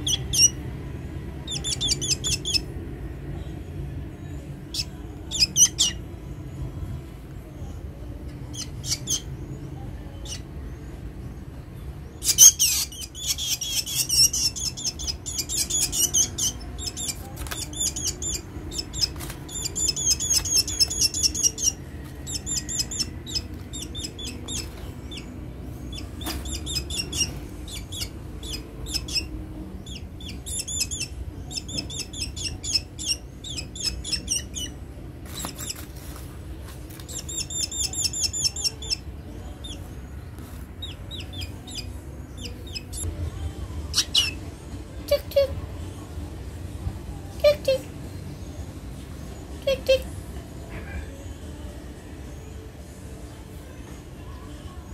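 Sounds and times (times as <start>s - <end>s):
bird chirping: 0.0s - 0.6s, 1.4s - 2.8s, 4.6s - 6.0s, 8.4s - 11.0s, 11.8s - 35.9s, 36.9s - 43.1s, 43.9s - 44.4s.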